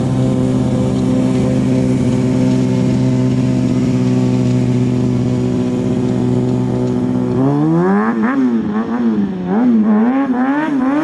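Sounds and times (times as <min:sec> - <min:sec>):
motorcycle engine running steadily: 0:00.0 - 0:11.0.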